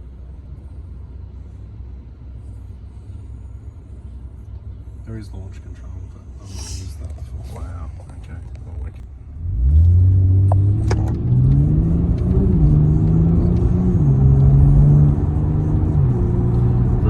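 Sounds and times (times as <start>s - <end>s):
car engine accelerating hard: 7.0s - 17.0s.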